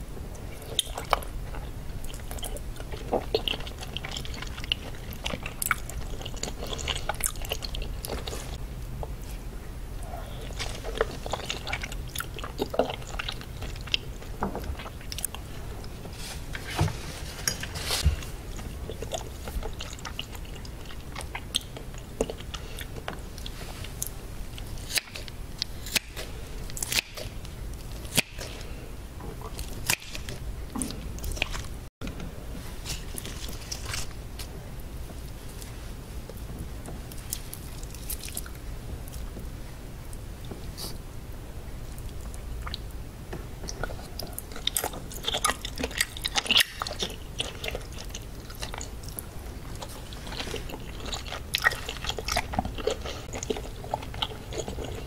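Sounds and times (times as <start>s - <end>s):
chewing with wet mouth smacks: 0.4s - 9.4s, 10.0s - 16.0s, 18.5s - 28.7s, 43.6s - 55.0s.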